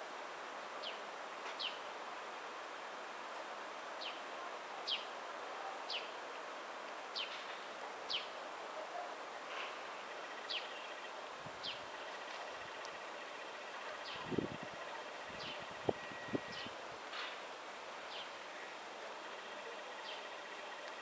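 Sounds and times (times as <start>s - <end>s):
outdoor hiss: 0.0s - 21.0s
small bird chirping: 10.1s - 16.8s.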